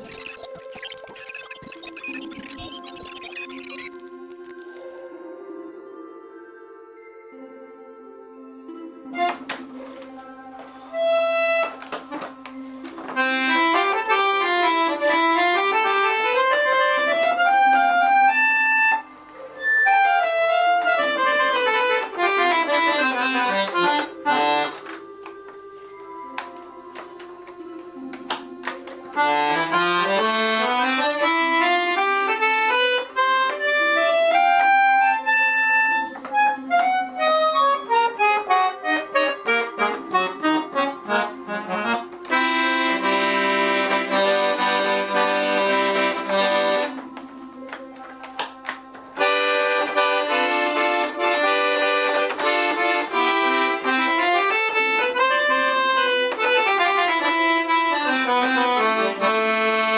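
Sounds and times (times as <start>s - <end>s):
accordion notes and chords: 0.0s - 5.0s, 13.1s - 19.0s, 19.6s - 25.0s, 28.2s - 47.5s, 48.7s - 59.9s.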